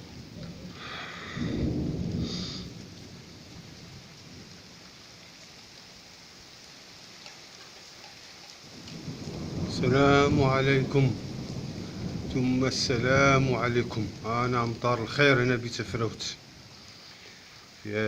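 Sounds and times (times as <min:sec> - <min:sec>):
thunder rumble: 0:00.0 - 0:05.4, 0:08.7 - 0:16.7
steady rain falling: 0:00.0 - 0:18.0.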